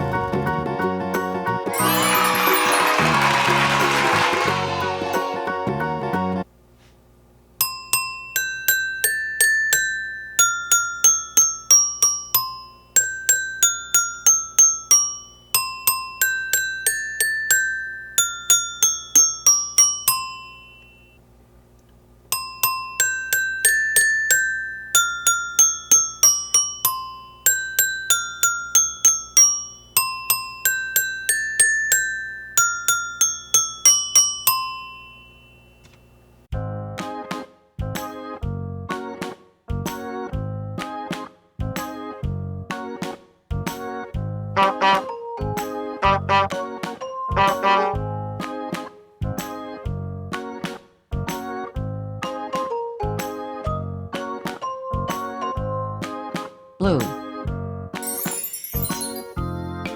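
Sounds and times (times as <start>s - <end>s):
high bell-like tune: 1.8s - 5.5s, 7.6s - 21.2s, 22.3s - 36.3s, 58.0s - 59.9s.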